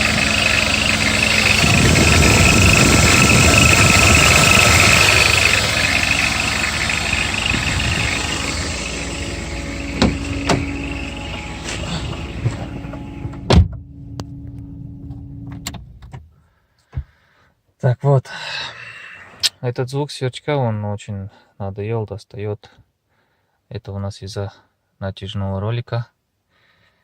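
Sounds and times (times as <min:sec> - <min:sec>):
high chirping belt squeal: 0:00.0 - 0:13.3
engine running: 0:00.0 - 0:16.2
sharp clicks and knocks: 0:10.0 - 0:10.7.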